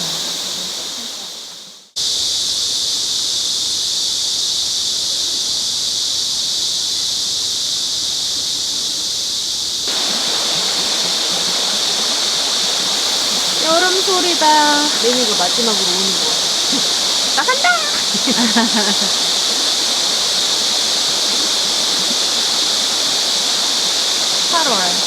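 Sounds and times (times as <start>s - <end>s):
mountain stream rushing: 0.0s - 1.5s, 9.9s - 25.0s
cicadas chorus: 0.0s - 25.0s.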